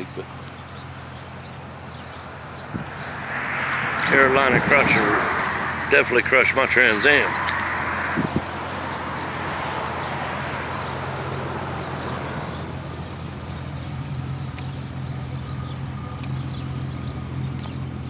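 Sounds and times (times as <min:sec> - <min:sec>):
vehicle passing by: 0:01.7 - 0:14.0
steady low hum: 0:02.0 - 0:10.5.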